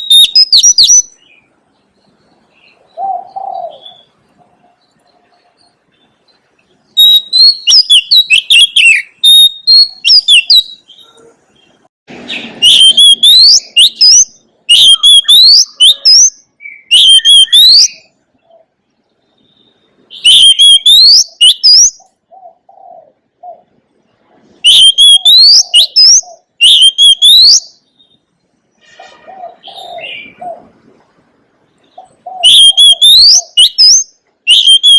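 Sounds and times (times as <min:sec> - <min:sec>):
bird singing whistled phrases: 0:00.0 - 0:01.5, 0:07.0 - 0:11.1, 0:12.3 - 0:18.1, 0:19.4 - 0:22.1, 0:24.6 - 0:28.2, 0:32.2 - 0:34.9.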